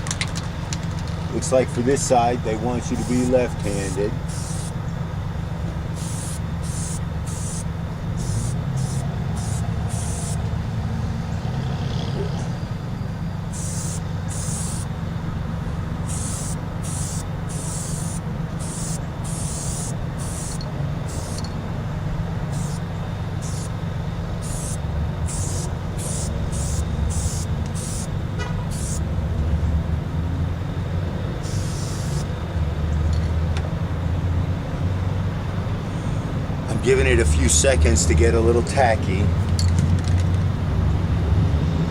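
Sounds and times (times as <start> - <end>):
low rumble of vehicle noise: 0.0 - 41.9
aerosol spray can hissing: 2.8 - 4.8, 5.9 - 10.5, 13.5 - 14.9, 16.0 - 21.5, 22.5 - 22.8, 23.4 - 23.8, 24.4 - 29.0, 31.4 - 32.3.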